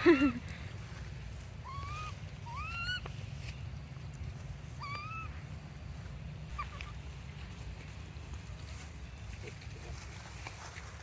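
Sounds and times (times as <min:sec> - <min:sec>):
steady low rumble: 0:00.0 - 0:11.0
baby monkey crying: 0:01.6 - 0:03.1, 0:04.7 - 0:05.5, 0:06.5 - 0:07.1.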